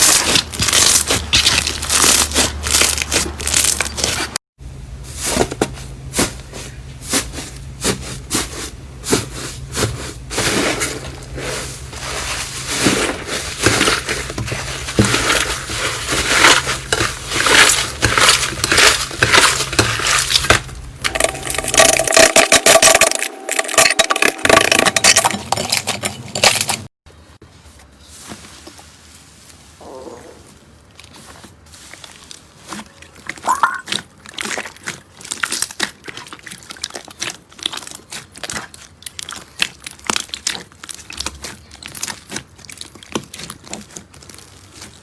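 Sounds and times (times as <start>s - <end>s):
slime squeezed crackling and popping: 0.0s - 4.3s, 33.0s - 45.0s.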